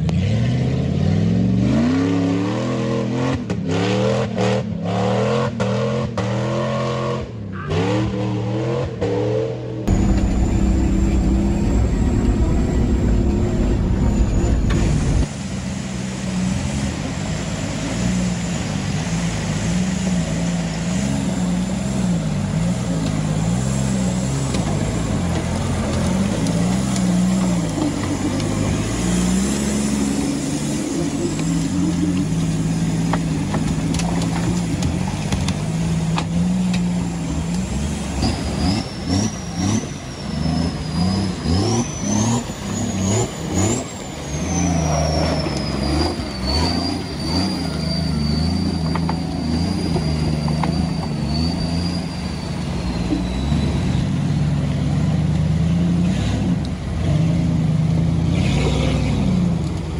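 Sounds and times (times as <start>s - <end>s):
engine rumble inside cab: 9.8s - 20.2s
engine revving under load: 55.0s - 59.9s.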